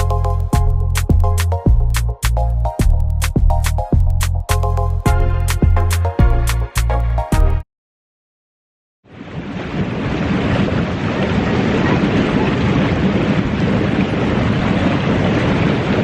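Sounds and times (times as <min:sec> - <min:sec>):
ocean surf rushing: 0:09.1 - 0:16.0
wind buffeting microphone: 0:09.1 - 0:16.0.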